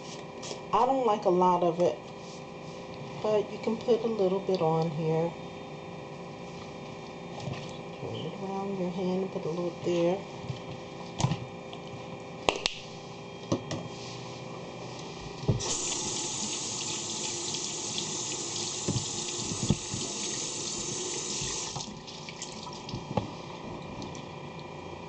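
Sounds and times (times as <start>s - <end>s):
tap running into a sink: 15.5s - 21.9s.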